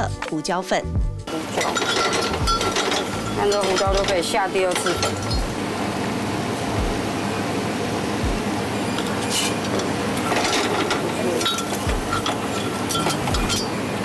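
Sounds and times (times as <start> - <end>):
steady cooking hiss: 1.3 - 14.0
utensil clinking against metal pan: 1.4 - 5.5, 9.2 - 13.8.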